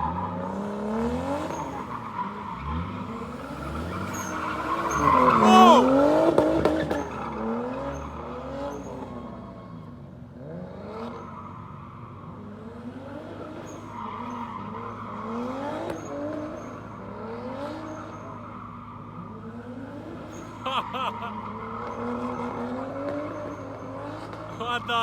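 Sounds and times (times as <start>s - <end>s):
tyre squeal: 1.5s - 6.2s.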